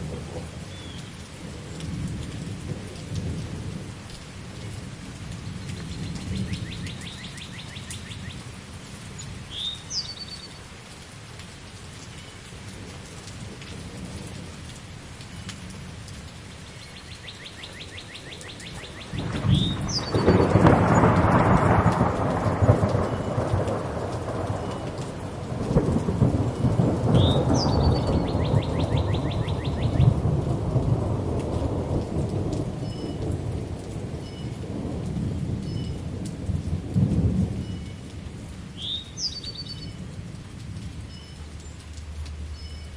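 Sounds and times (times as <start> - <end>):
thunder rumbling: 0.0 - 0.6, 18.4 - 37.8
steady rain: 0.0 - 42.9
bird trill and chirp: 5.8 - 8.4, 9.5 - 10.6, 16.7 - 20.6, 27.2 - 30.1, 38.8 - 40.0.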